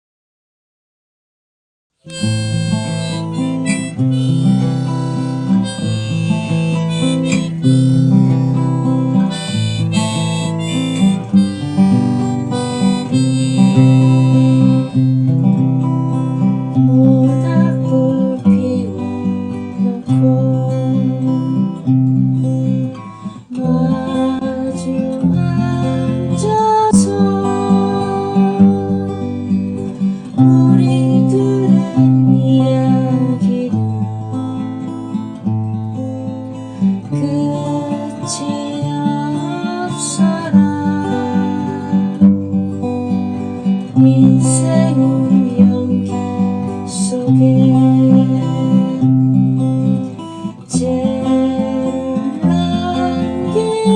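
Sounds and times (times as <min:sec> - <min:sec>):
acoustic guitar accompaniment: 0:02.0 - 0:53.9
harmonica melody: 0:02.1 - 0:53.9.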